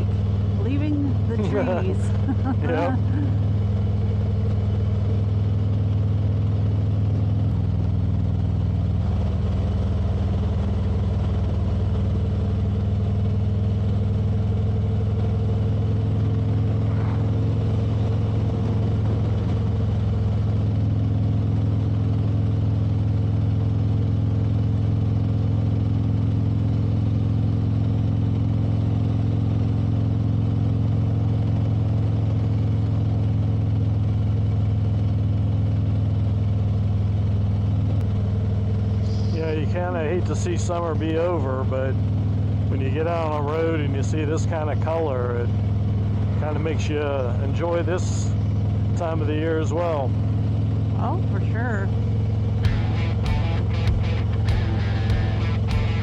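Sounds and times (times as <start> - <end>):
motorcycle engine cruising: 0.0 - 34.1, 37.6 - 56.0
road and wind noise: 0.0 - 39.9.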